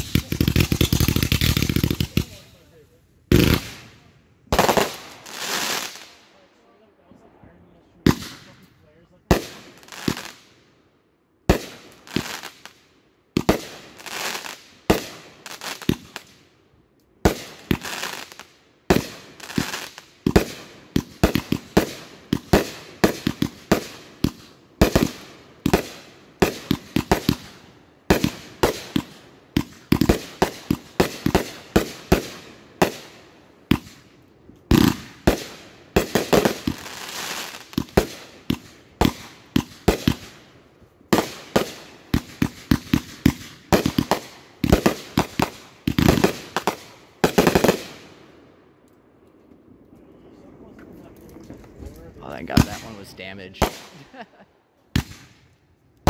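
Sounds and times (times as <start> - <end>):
fireworks rushing crackle: 0.0 - 6.2, 11.5 - 12.8, 17.2 - 40.5, 50.8 - 55.5
fireworks firing sharp reports: 0.0 - 6.4, 8.0 - 10.5, 11.5 - 12.8, 13.4 - 16.3, 17.2 - 34.1, 34.7 - 40.5, 41.1 - 48.1, 52.2 - 55.4.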